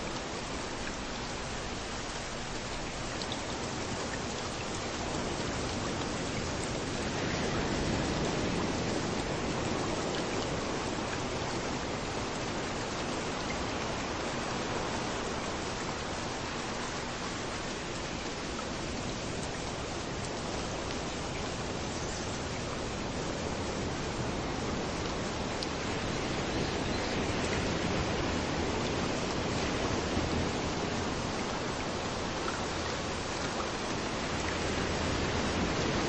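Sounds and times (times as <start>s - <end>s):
rain falling: 0.0s - 36.0s
waves washing in: 27.2s - 36.0s.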